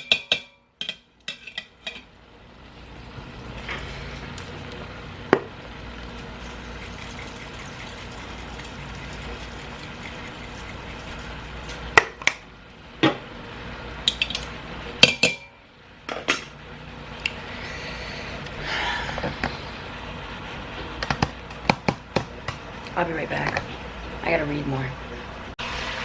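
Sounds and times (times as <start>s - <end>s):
metal utensil clanking against pot: 0.0s - 2.1s.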